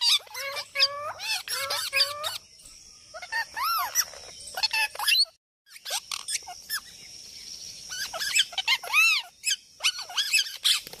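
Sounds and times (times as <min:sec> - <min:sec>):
bird squealing calls: 0:00.0 - 0:02.4, 0:07.9 - 0:10.9.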